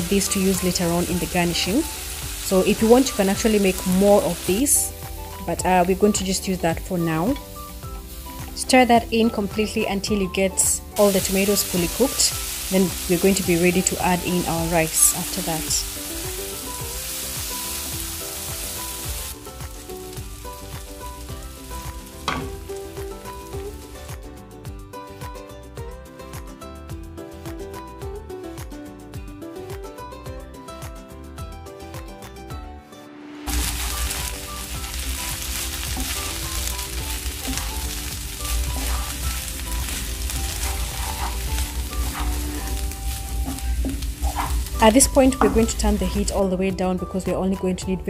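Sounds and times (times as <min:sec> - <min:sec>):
food sizzling in a hot pan: 0:00.0 - 0:24.4, 0:33.4 - 0:46.4
background music with steady beat: 0:00.0 - 0:48.0.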